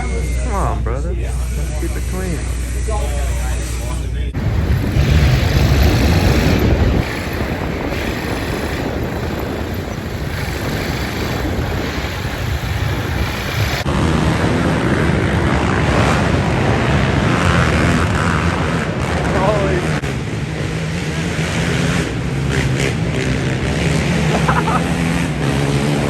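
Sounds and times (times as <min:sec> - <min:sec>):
dirt bike engines running: 0:00.0 - 0:26.0
wind noise on microphone: 0:03.4 - 0:24.1.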